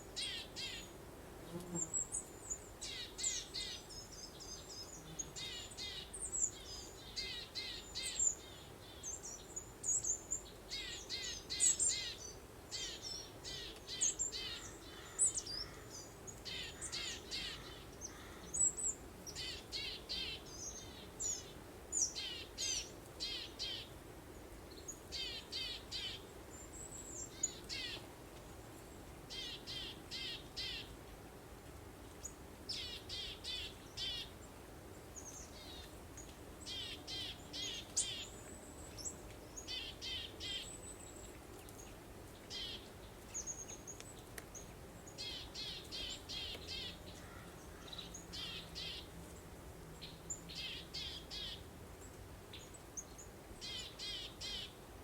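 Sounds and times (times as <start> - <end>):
songbirds chirping: 32.0 - 55.0.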